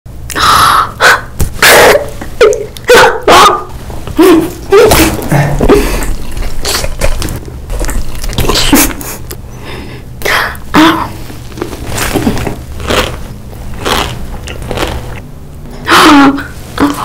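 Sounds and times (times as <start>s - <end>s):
wet chewing and mouth smacks: 6.4s - 9.4s, 11.5s - 15.2s
biting into soft food: 11.6s - 15.2s.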